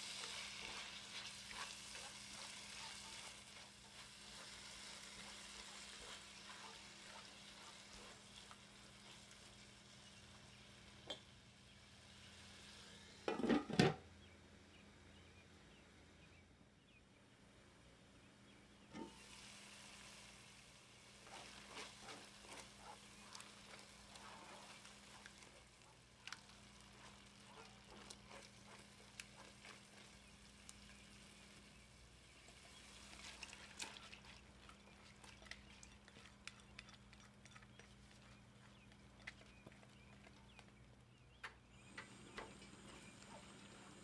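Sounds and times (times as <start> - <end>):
food sizzling in a pot: 0.0 - 13.6, 18.8 - 36.2
utensil stirring clicks: 32.4 - 43.4.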